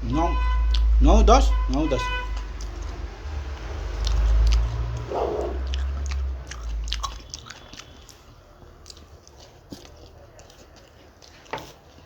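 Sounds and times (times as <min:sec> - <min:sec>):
loud low rumble: 0:00.0 - 0:07.3
crunchy chewing: 0:00.7 - 0:00.9, 0:01.7 - 0:12.0.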